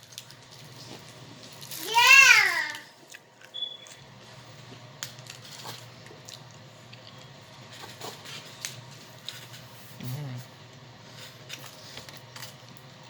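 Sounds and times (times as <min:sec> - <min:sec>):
people chewing crisp wafers: 0:03.0 - 0:12.9.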